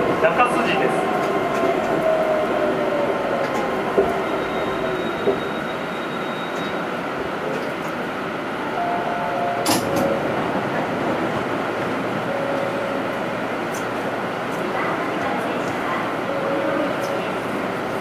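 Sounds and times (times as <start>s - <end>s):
train running rumble: 0.0s - 18.0s
train whine falling in pitch: 8.8s - 10.6s.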